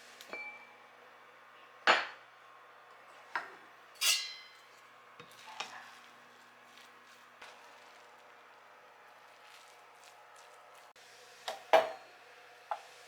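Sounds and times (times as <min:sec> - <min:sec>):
dishes and utensils clinking: 0:03.2 - 0:06.1, 0:11.5 - 0:12.1.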